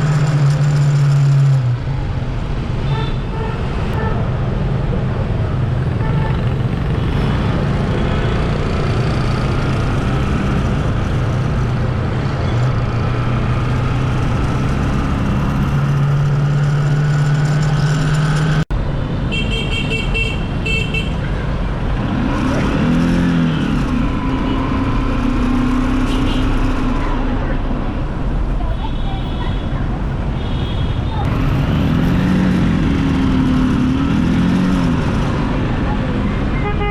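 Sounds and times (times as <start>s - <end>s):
vehicle horns honking: 19.3s - 21.2s, 36.5s - 36.9s.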